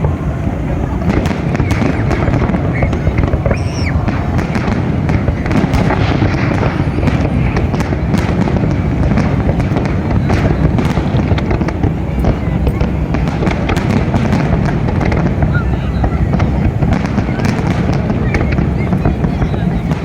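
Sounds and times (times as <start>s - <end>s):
fireworks booming: 0.0s - 20.0s
fireworks crackling pops: 0.0s - 20.0s.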